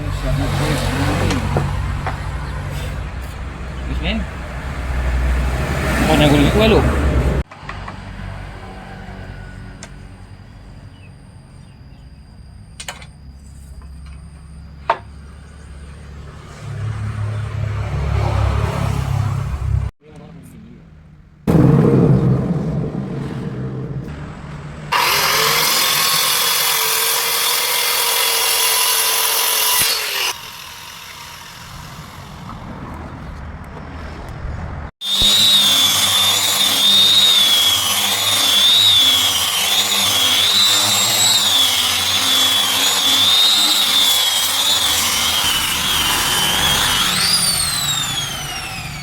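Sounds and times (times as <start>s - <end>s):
power tool running: 24.9s - 32.7s, 35.0s - 49.0s.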